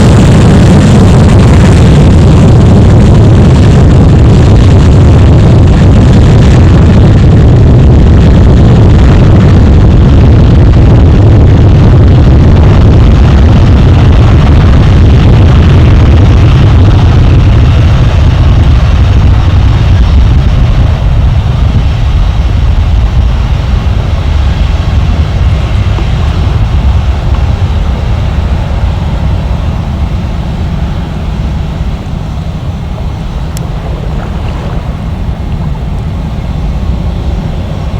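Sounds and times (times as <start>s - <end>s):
jet engines rumbling: 0.0s - 37.9s.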